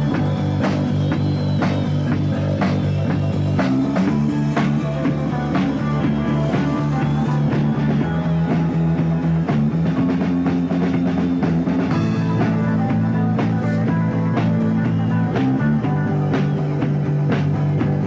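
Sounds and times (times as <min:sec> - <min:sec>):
bass notes: 0:00.0 - 0:18.0
drum kit beat: 0:00.0 - 0:18.0
electric guitar: 0:00.0 - 0:18.0.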